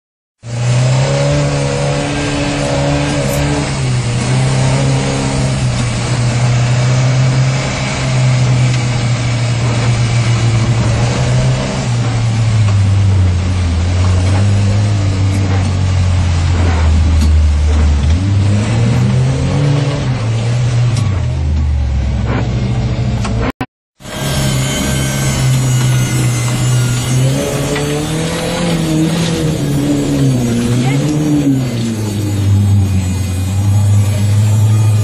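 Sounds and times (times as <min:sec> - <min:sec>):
engine pulling heard from cabin: 0:00.4 - 0:35.0
tyre and track noise: 0:00.4 - 0:35.0.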